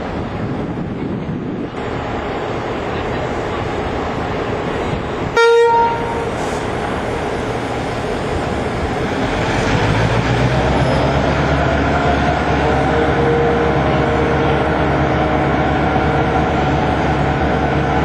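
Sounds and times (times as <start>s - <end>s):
diesel locomotive engine drone: 0.0s - 18.0s
train horn toot: 5.4s - 6.3s, 12.6s - 14.9s.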